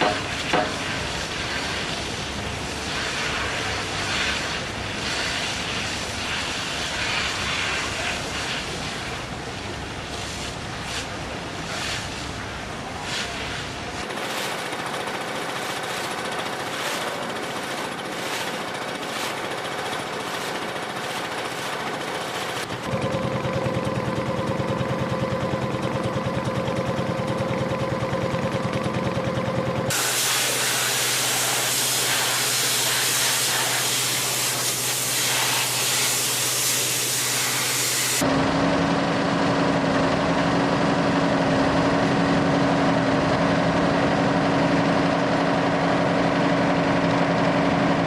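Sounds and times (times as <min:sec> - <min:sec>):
machinery clatter: 0:14.0 - 0:38.8
pulsing engine drone: 0:14.1 - 0:35.8.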